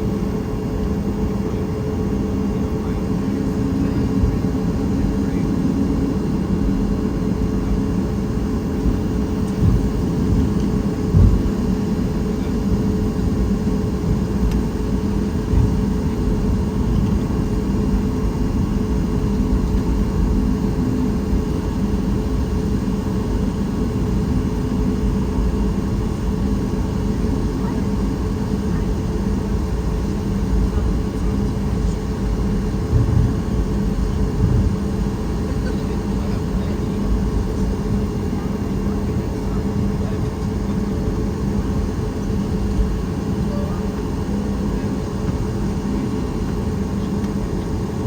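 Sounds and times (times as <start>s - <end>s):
airplane cabin drone: 0.0s - 48.0s
brief low thumps: 11.1s - 11.5s.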